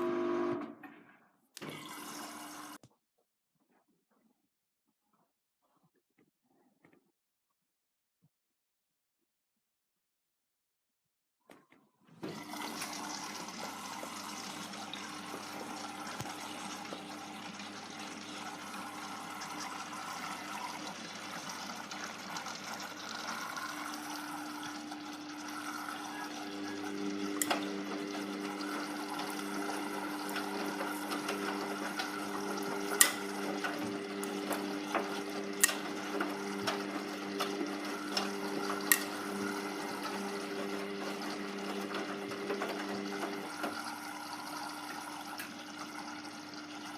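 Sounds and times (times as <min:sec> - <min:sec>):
washing machine pump hum: 0:00.0 - 0:01.0, 0:01.6 - 0:02.8, 0:12.0 - 0:46.9.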